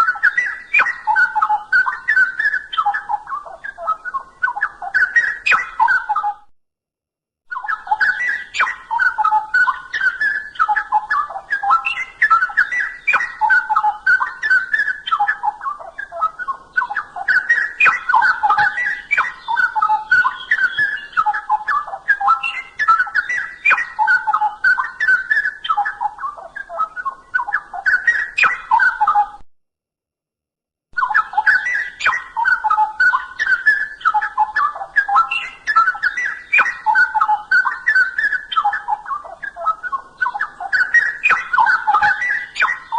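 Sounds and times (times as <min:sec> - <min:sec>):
bird singing whistled notes: 0:00.0 - 0:06.5, 0:07.5 - 0:29.4, 0:31.0 - 0:42.9.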